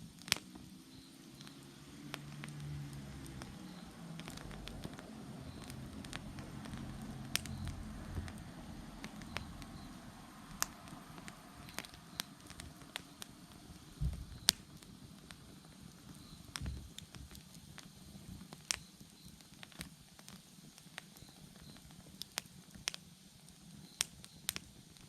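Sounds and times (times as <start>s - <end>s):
faint insect chirps: 0.0s - 22.6s, 23.2s - 25.0s
bonfire crackling: 0.0s - 25.0s
sharp pops: 0.1s - 17.9s
low rumble: 2.4s - 12.8s.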